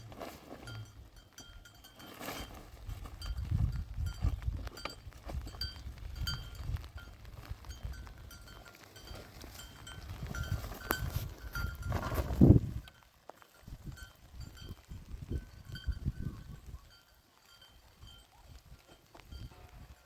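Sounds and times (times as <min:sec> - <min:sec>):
livestock bells jingling: 0:00.0 - 0:20.0.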